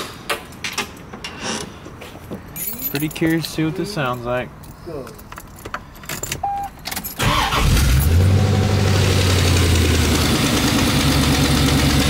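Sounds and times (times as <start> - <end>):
car engine starting and idling: 6.4 - 12.0.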